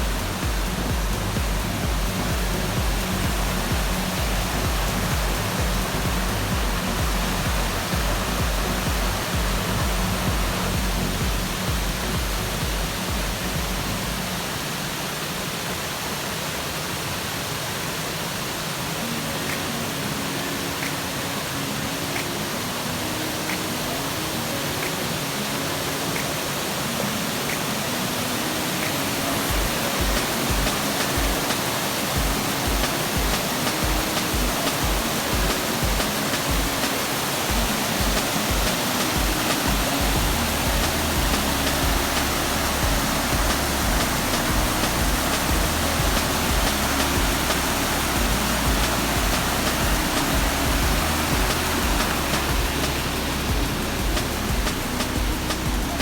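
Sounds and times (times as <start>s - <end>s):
pulsing bass beat: 0.0s - 14.4s, 29.4s - 36.8s, 37.5s - 56.0s
background music: 0.0s - 14.9s, 18.4s - 56.0s
waterfall rushing: 0.0s - 56.0s.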